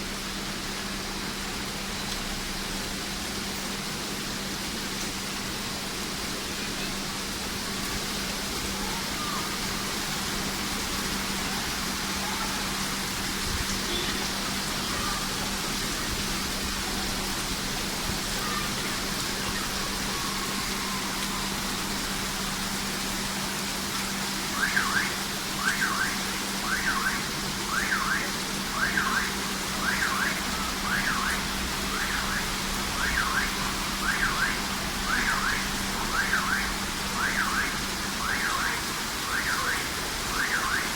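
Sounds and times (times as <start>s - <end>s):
rain hiss: 0.0s - 40.9s
car alarm wailing: 24.5s - 40.9s.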